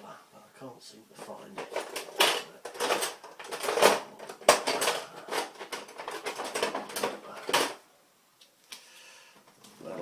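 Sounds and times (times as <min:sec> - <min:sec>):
utensils clattering in a drawer: 0:01.4 - 0:07.8.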